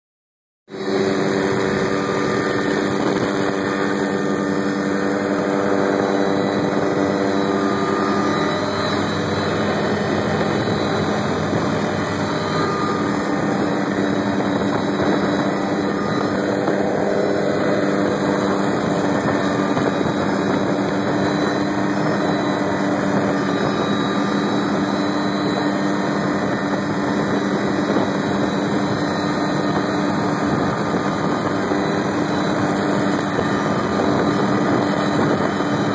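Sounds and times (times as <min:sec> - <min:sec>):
helicopter engine and rotor: 0:00.7 - 0:35.9.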